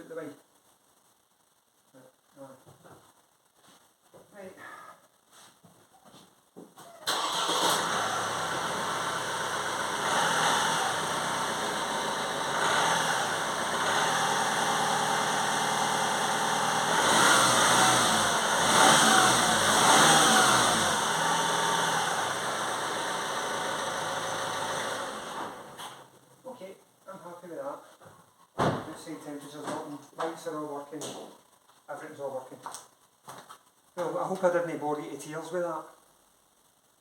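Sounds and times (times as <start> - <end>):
car engine revving: 7.1 - 25.8
car engine starting and idling: 7.1 - 26.4.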